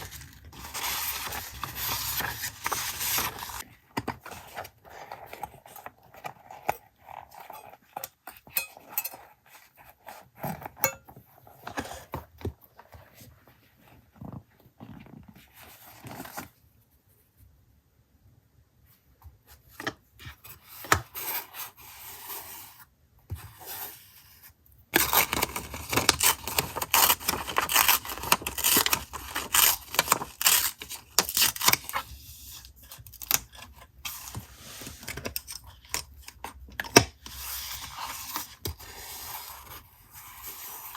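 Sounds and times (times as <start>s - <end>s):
paper rustling and scraping: 0.0s - 8.0s, 23.4s - 36.0s, 37.3s - 40.9s.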